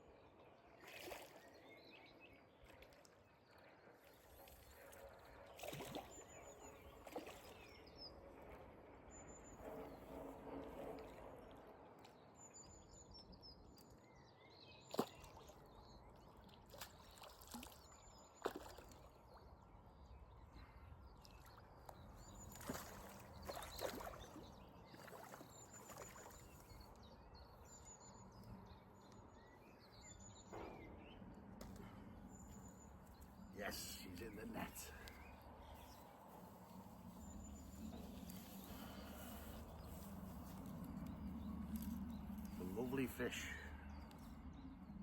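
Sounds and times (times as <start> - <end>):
water splashing and sloshing: 0.6 - 12.7, 14.8 - 19.8, 21.1 - 29.3.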